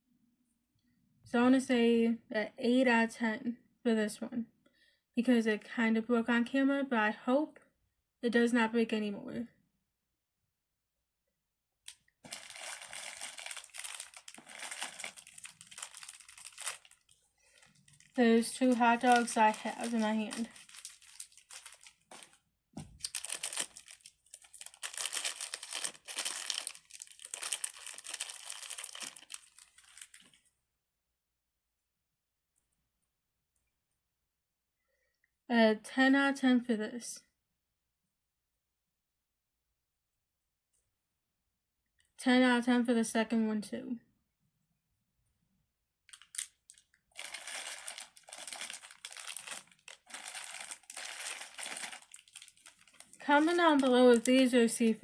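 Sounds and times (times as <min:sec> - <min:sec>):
plastic crinkling and rustling: 0:12.2 - 0:30.5, 0:46.1 - 0:55.0.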